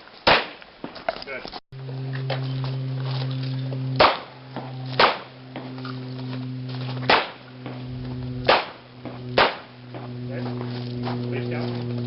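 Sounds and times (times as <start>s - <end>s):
steady low hum: 1.8s - 12.0s
pistol shots: 4.0s - 4.3s, 5.0s - 5.3s, 7.1s - 7.8s, 8.5s - 10.0s.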